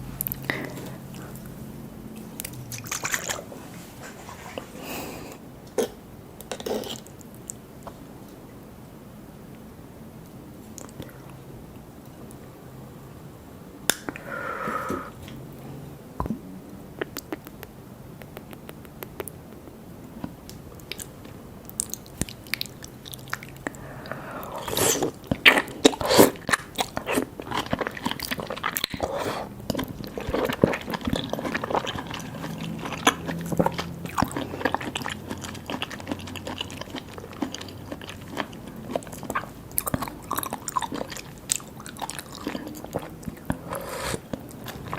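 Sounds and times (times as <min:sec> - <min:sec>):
biting and wet chewing: 0:00.2 - 0:03.8, 0:17.0 - 0:44.9
mouth clicks and smacks: 0:16.2 - 0:23.8.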